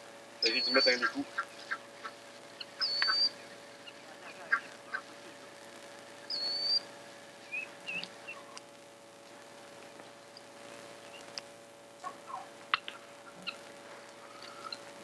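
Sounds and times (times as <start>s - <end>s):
steady low hum: 0.0s - 15.0s
whistled bird note: 0.4s - 1.1s, 2.8s - 3.4s, 6.3s - 6.8s.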